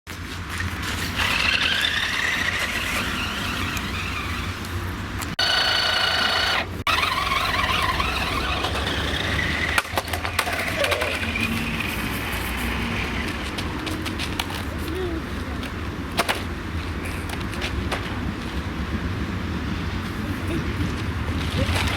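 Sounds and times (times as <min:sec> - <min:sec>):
toy truck electric motor whining: 0:00.8 - 0:13.5.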